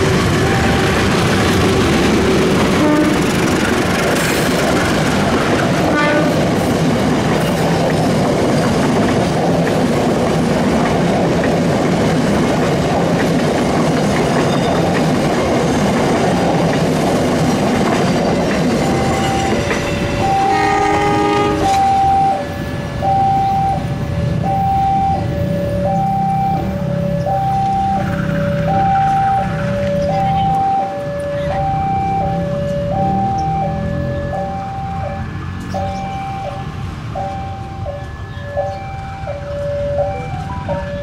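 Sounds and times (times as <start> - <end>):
train wheels rumbling and clacking: 0.0 - 41.0
electronic two-tone signal: 0.4 - 1.1, 18.8 - 36.6, 37.2 - 41.0
train horn: 2.6 - 3.4, 5.8 - 6.5, 18.8 - 22.5.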